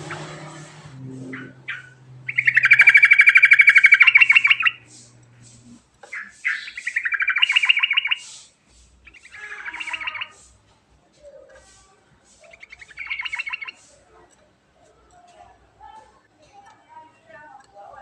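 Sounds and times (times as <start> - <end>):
bird singing chattering notes: 1.0 - 10.6, 12.3 - 14.0.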